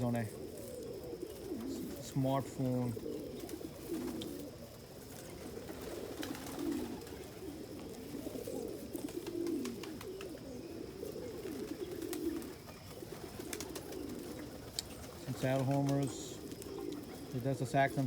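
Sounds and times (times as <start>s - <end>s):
pigeons cooing: 0.0s - 18.0s
faint clicks: 14.7s - 14.9s.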